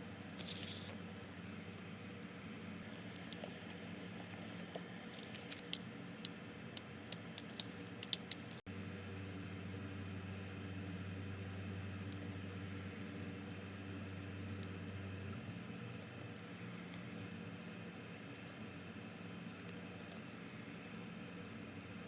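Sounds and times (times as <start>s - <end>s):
steady low hum: 0.0s - 22.0s
hard cards clicking together: 5.2s - 5.8s, 6.8s - 8.6s.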